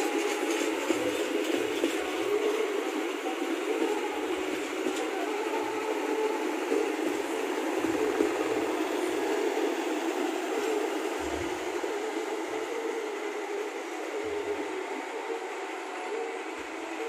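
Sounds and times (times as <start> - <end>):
train wheels rumbling on rails: 0.0 - 12.8.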